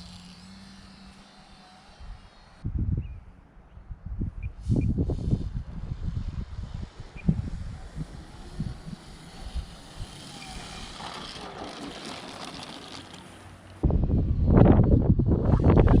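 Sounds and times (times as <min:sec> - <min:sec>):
wind buffeting microphone: 0:02.0 - 0:03.2, 0:03.8 - 0:11.6, 0:13.8 - 0:16.0.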